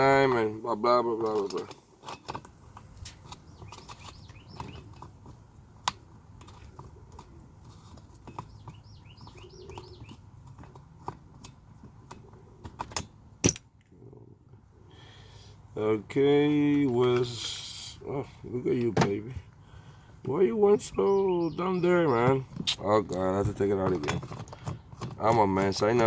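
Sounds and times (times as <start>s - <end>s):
bird chirping: 3.2s - 5.1s, 7.2s - 10.6s, 19.7s - 24.1s.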